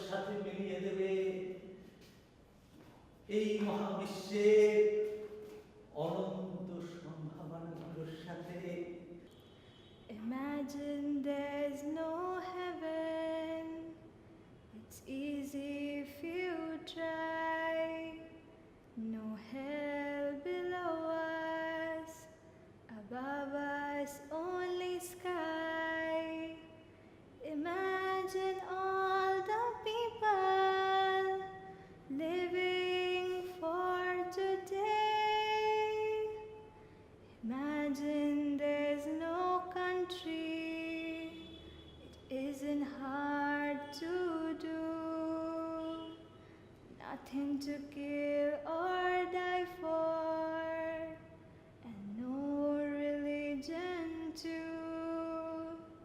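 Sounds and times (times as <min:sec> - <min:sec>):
woman singing slowly: 0:10.1 - 0:14.0, 0:14.7 - 0:36.7, 0:37.4 - 0:46.3, 0:47.0 - 0:56.0.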